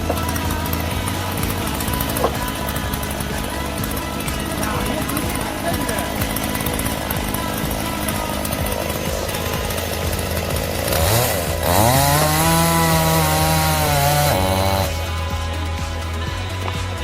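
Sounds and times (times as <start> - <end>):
background music: 0.0 - 17.0
chainsaw engine revving: 0.0 - 17.0.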